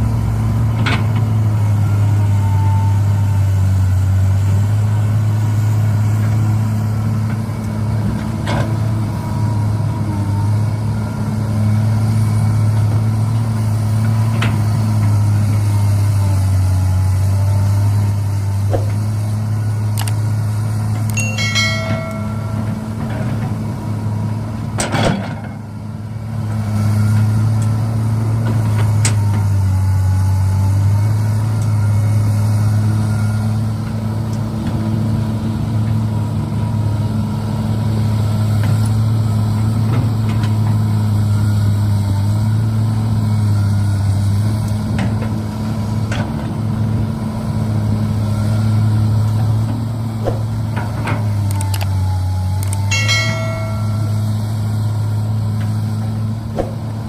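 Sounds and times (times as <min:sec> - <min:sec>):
model vehicle engine drone: 0:51.1 - 0:57.0
sharp clicks: 0:51.4 - 0:52.0, 0:52.6 - 0:52.9.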